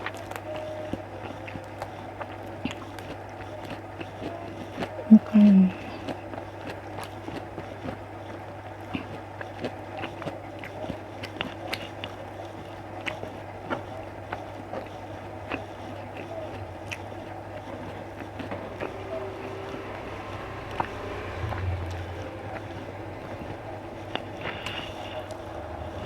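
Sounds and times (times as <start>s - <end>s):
person chewing with mouth clicks: 0.0s - 26.0s
low hum: 18.0s - 26.0s.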